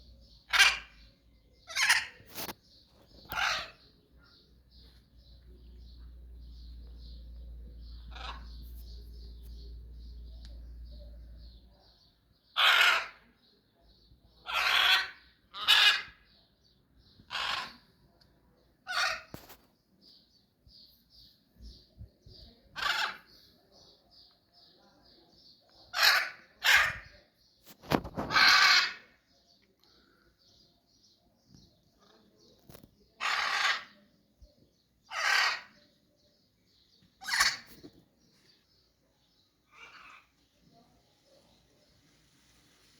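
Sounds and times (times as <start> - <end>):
small birds chirping: 0.0 - 42.9
large bird squawking: 0.5 - 1.0, 1.7 - 2.5, 3.2 - 4.0, 8.1 - 8.7, 12.6 - 13.2, 14.4 - 16.3, 17.2 - 17.9, 18.8 - 19.5, 22.7 - 23.4, 25.9 - 27.2, 28.1 - 29.2, 33.2 - 34.0, 35.0 - 35.8, 37.2 - 37.9, 39.7 - 40.4.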